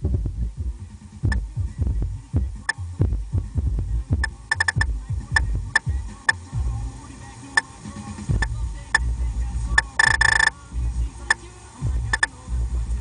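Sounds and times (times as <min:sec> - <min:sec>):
deep bass pulsing from subwoofers: 0:00.0 - 0:13.0
sharp clicking hits: 0:04.2 - 0:06.5, 0:09.8 - 0:10.5, 0:12.1 - 0:12.3.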